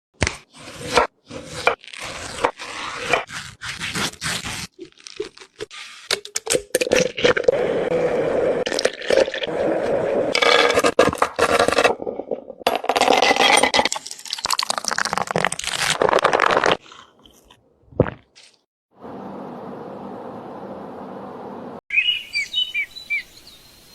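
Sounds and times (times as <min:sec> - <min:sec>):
knife cutting crisp fruit: 0:00.2 - 0:07.0.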